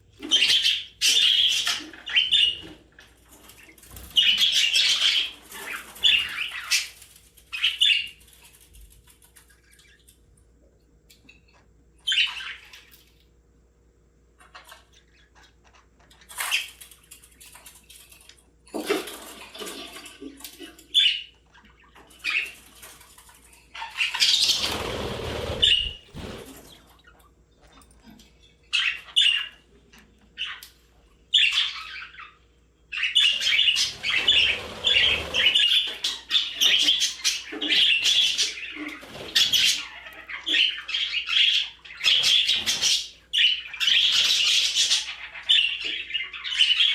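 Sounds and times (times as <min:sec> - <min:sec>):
budgerigars chirping: 0:00.2 - 0:02.8, 0:03.9 - 0:08.2, 0:12.0 - 0:12.8, 0:23.7 - 0:26.4, 0:28.7 - 0:29.7, 0:31.3 - 0:46.9.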